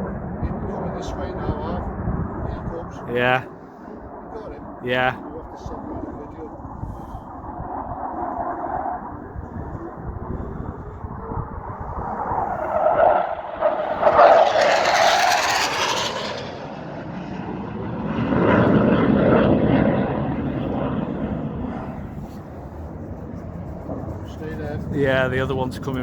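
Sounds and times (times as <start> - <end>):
low-flying military aircraft passing: 0.0 - 26.0.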